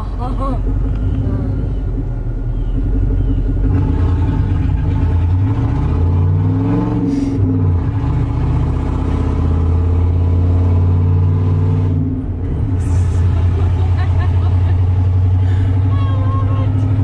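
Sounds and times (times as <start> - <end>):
loud deep vehicle engine: 0.0 - 17.0.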